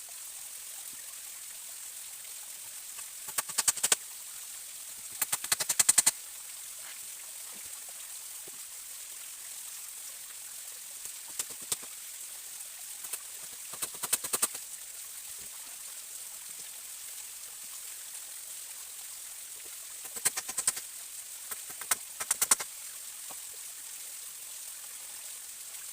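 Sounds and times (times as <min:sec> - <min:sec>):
forest stream running: 0:00.0 - 0:25.9
rapid clicking: 0:03.2 - 0:04.0, 0:05.2 - 0:06.1, 0:11.2 - 0:11.9, 0:13.0 - 0:14.6, 0:20.0 - 0:20.8, 0:21.5 - 0:22.7.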